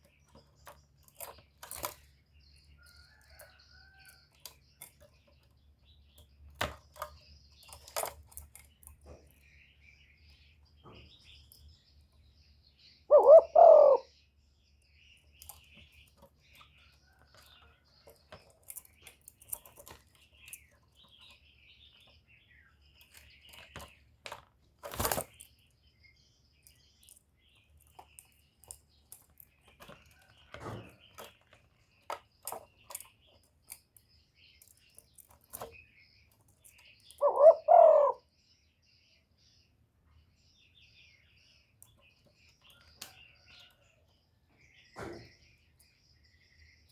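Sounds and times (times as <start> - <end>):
faint small bird chirps: 0.0 - 24.2, 24.8 - 46.9
dove cooing: 13.1 - 14.1, 37.2 - 38.2
scattered clicks and crackles: 15.2 - 22.2.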